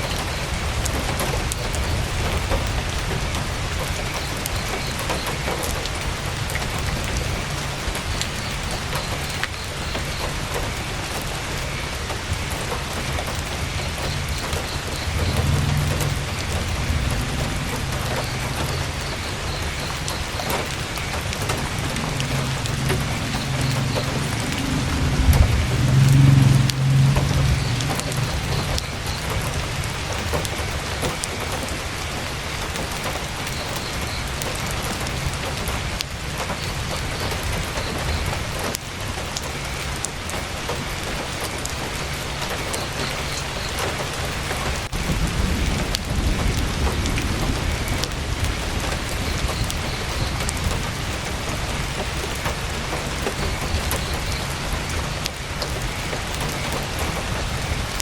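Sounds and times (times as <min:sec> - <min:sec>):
heavy rain on tent fabric: 0:00.0 - 0:58.0
low rumble: 0:13.6 - 0:30.2.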